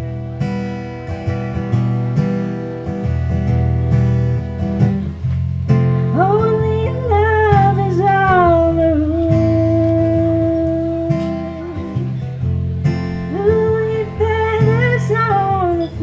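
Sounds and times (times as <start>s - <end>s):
strummed acoustic guitar: 0.0s - 16.0s
woman singing wordless vowel: 6.1s - 12.3s, 13.2s - 16.0s.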